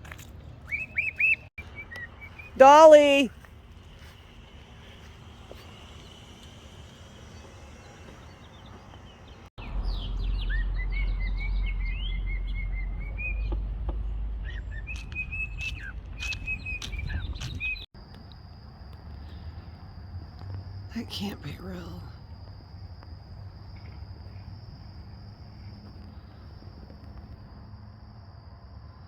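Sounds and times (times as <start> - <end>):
bird chirping and whistling: 0.7 - 2.8, 9.8 - 13.5, 14.4 - 17.8
low rumble: 9.6 - 17.9.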